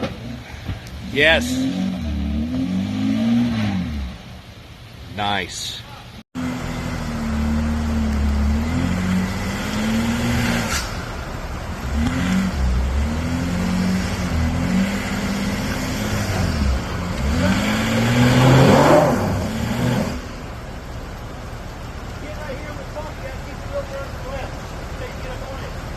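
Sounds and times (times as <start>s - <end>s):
off-road vehicle engine revving: 0.0s - 4.5s, 6.4s - 20.6s.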